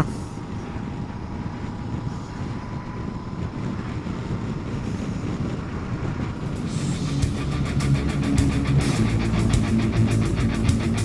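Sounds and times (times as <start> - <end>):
wind noise on microphone: 0.0 - 11.0
motorcycle engine running: 6.4 - 11.0.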